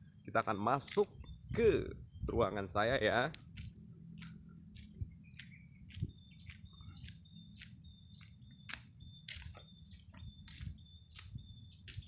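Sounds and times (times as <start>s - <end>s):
small birds chirping: 0.0s - 12.0s
soft footsteps: 3.3s - 12.0s.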